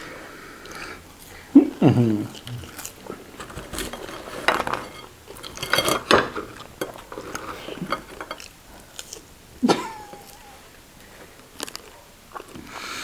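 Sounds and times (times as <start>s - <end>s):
cutlery clinking on a plate: 2.4s - 9.2s.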